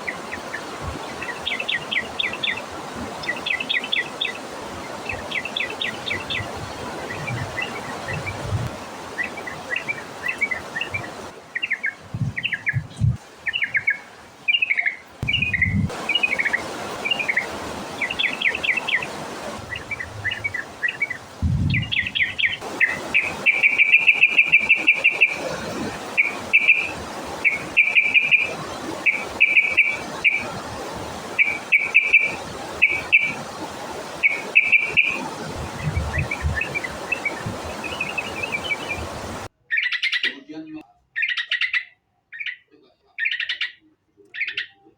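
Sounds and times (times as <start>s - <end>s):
bird singing and trilling: 9.2s - 44.9s
low thumps: 15.2s - 15.9s, 21.4s - 22.2s.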